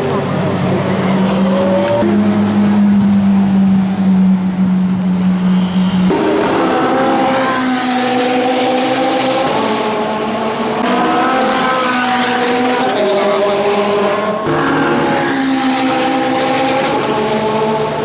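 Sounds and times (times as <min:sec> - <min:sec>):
sports car engine running: 0:00.0 - 0:07.0.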